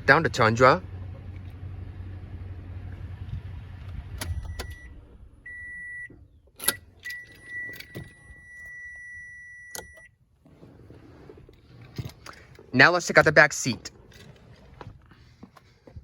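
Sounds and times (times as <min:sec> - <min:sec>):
car engine idling: 0:00.0 - 0:07.0
high warning chime: 0:05.5 - 0:10.1
keys jingling: 0:06.6 - 0:08.5.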